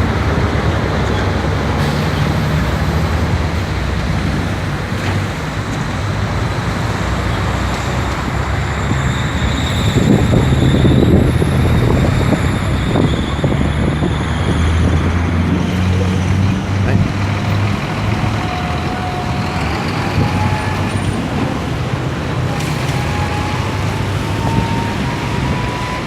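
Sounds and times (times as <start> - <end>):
strong wind buffeting microphone: 8.1 - 26.0.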